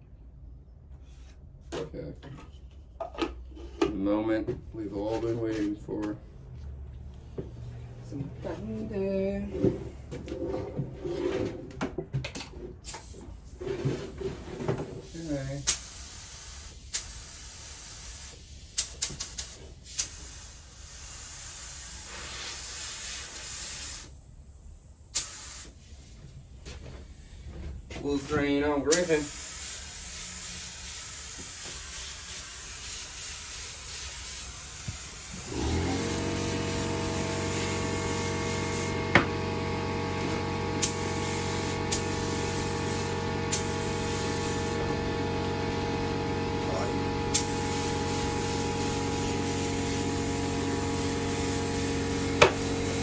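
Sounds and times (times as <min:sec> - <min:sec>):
paint spray gun hissing: 0:15.4 - 0:24.1, 0:25.1 - 0:25.9, 0:28.1 - 0:53.0.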